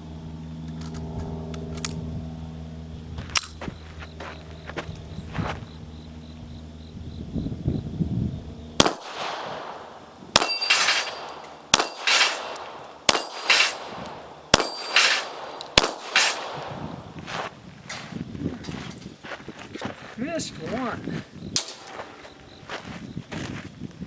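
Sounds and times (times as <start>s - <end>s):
pistol shots: 8.8s - 17.2s, 21.6s - 22.1s
steel plate ringing when hit: 10.4s - 16.4s, 21.6s - 22.1s.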